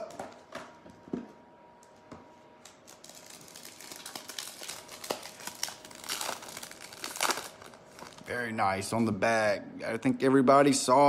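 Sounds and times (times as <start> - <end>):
plastic wrapper crinkling: 2.6 - 8.4.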